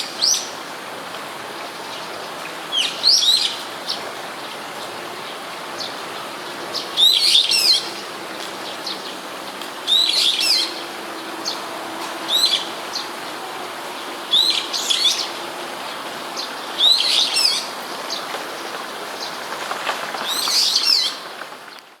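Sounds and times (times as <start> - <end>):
bird calling shrill phrases: 9.9 - 10.9.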